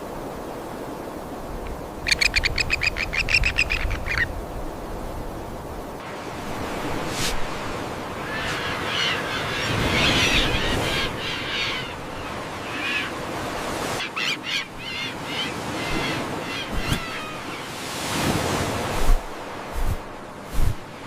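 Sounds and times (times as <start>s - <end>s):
forest ambience hiss: 0.0s - 21.0s
birds calling harsh notes: 8.2s - 13.2s, 14.0s - 17.8s.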